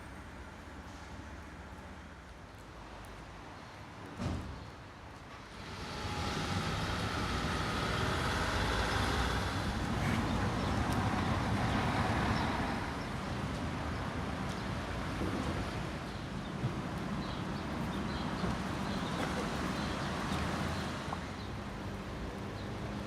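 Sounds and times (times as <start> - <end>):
vehicle passing on wet street: 5.4 - 23.0
steady rain: 5.5 - 15.7.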